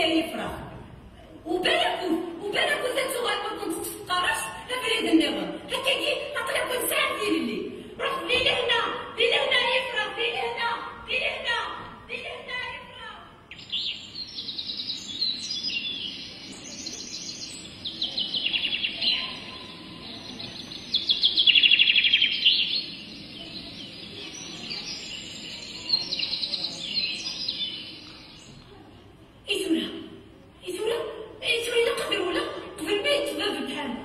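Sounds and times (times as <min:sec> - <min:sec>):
birds chirping and trilling: 0:12.2 - 0:28.7.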